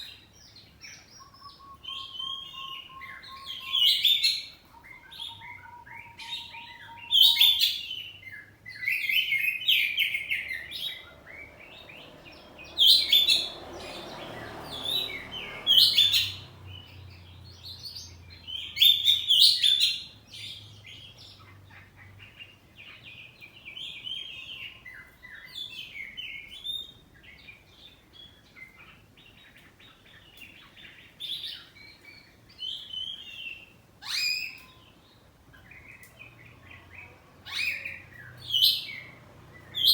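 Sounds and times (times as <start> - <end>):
bird singing whistled phrases: 1.0 - 11.1, 31.4 - 35.0.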